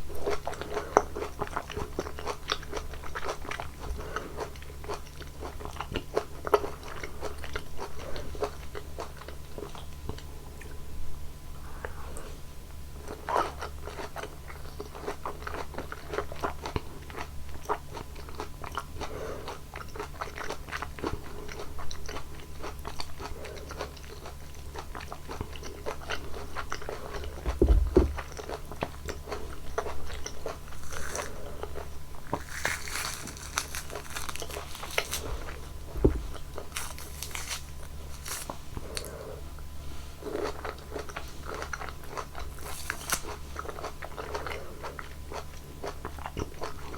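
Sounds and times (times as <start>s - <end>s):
wet chewing: 0.1s - 10.8s, 13.0s - 39.3s, 40.2s - 46.9s
biting juicy fruit: 13.1s - 39.2s, 40.4s - 46.9s.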